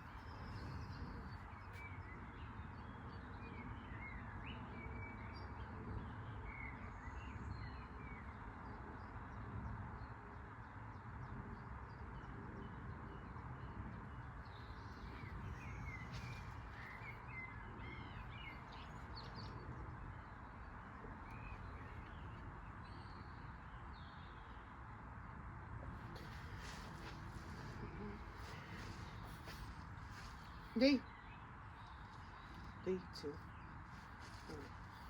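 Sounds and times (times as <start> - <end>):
birds chirping: 0.0 - 4.6, 13.1 - 24.7, 25.9 - 35.0.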